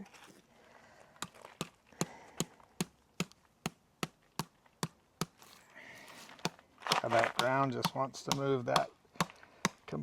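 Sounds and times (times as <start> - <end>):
hammer striking spike into ground: 6.4 - 9.8.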